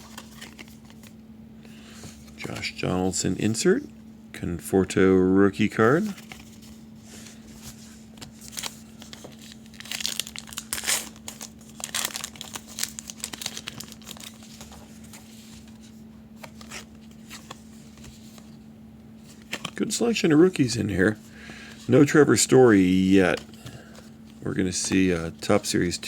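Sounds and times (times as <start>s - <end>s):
cards rustling and clicking: 0.0s - 1.2s, 1.9s - 2.8s, 5.8s - 18.6s, 19.2s - 26.0s
steady low hum: 0.0s - 26.0s
wrapper being torn and crinkled: 9.4s - 14.5s.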